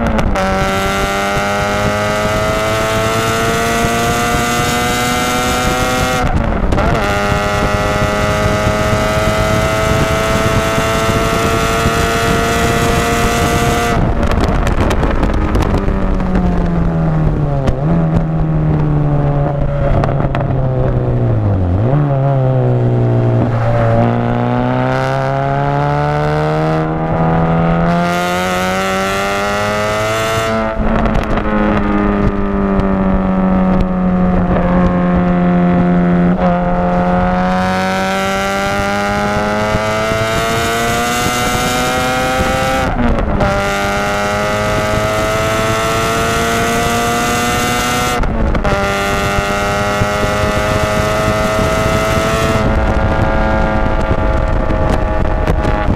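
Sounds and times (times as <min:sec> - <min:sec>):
race car engine revving: 0:00.0 - 0:55.9.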